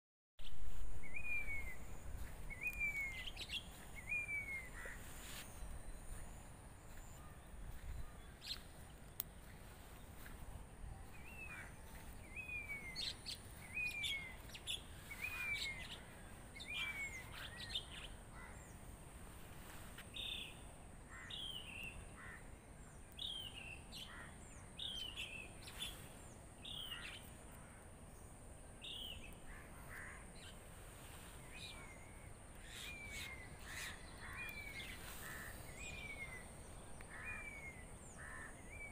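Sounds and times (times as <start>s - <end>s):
birds calling: 0.4s - 18.8s, 31.4s - 38.9s
faint high hiss: 0.4s - 38.9s.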